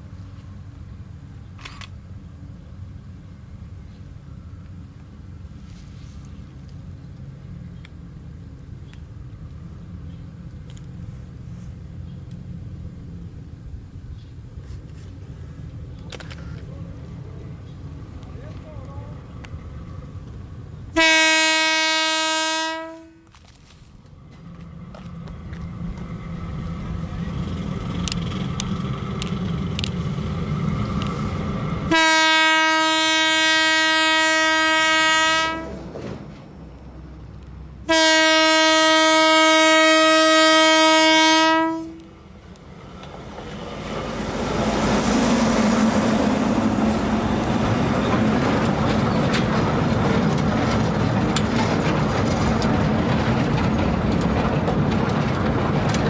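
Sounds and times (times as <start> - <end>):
diesel locomotive engine rumbling: 0.0 - 56.0
train wagons clattering: 14.0 - 21.1, 23.3 - 32.1, 35.5 - 38.0, 41.5 - 56.0
locomotive horn blasts: 20.9 - 23.4, 31.9 - 35.8, 37.8 - 42.1.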